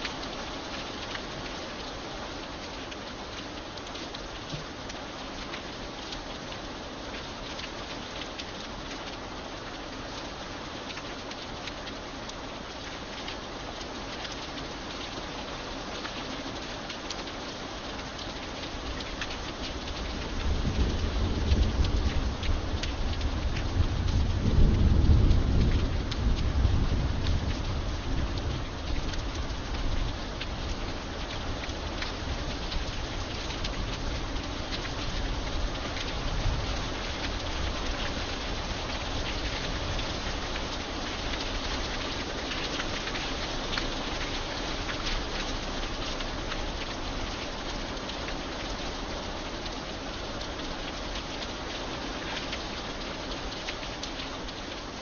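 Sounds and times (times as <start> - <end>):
steady rain falling: 0.0 - 55.0
low rumble of thunder: 19.8 - 40.8.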